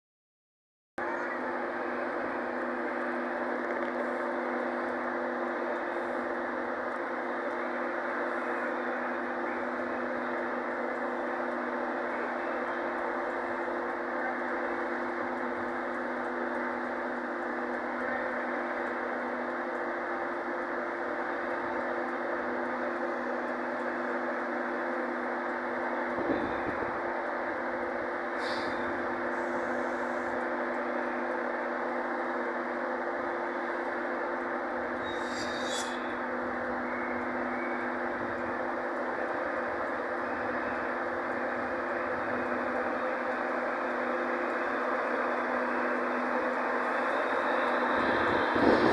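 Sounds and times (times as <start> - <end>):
train engine droning: 1.0 - 48.9
high-pitched squeaks: 35.0 - 36.2.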